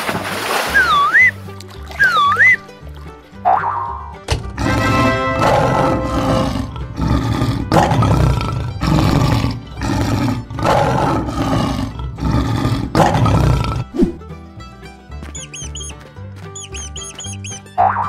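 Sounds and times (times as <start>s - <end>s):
children's background music: 0.7s - 18.0s
lion roaring: 4.5s - 14.0s.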